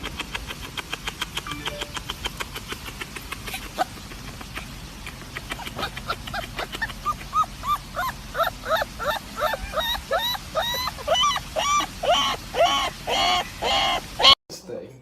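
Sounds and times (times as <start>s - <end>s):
dog whining in high yips: 7.0s - 14.4s.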